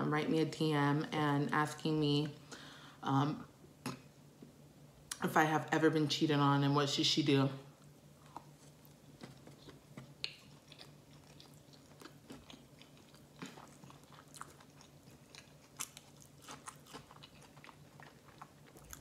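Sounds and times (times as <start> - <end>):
wet chewing: 8.2 - 19.0.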